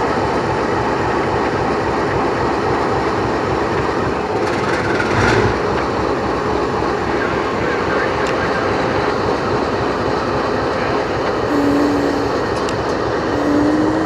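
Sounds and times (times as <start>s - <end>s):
train wheels clattering on rails: 0.0s - 7.0s.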